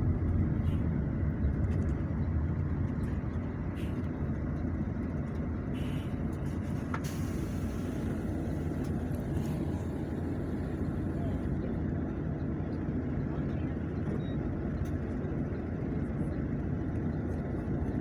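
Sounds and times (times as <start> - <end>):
road vehicle rumble: 0.0 - 18.0.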